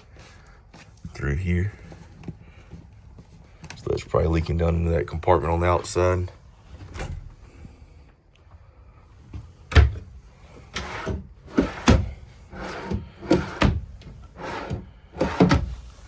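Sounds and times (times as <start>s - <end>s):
wooden drawers opening and shutting: 6.7s - 7.4s, 9.4s - 16.0s.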